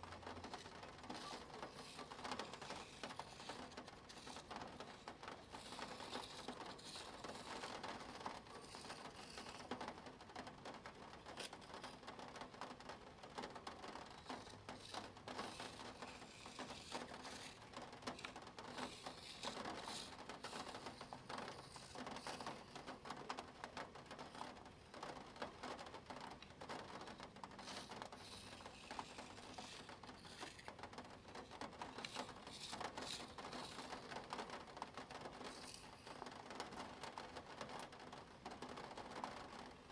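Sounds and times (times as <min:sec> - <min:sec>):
plastic gears clicking: 0:00.0 - 0:10.0, 0:13.4 - 0:23.4, 0:26.3 - 0:37.9
pen scratching on paper: 0:00.4 - 0:09.8, 0:14.0 - 0:22.9, 0:27.0 - 0:34.6.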